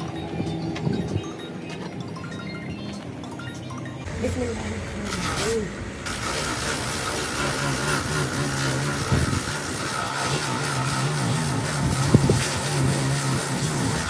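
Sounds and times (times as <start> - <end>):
engine humming steadily: 4.0 - 13.5.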